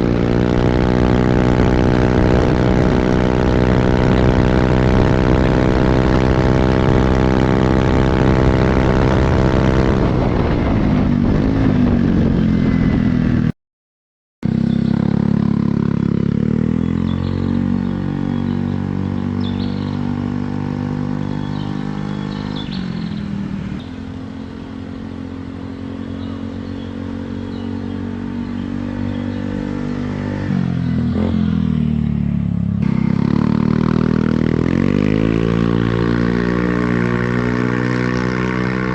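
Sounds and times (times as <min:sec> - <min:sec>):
scooter engine revving: 0:00.0 - 0:13.5, 0:14.4 - 0:38.9.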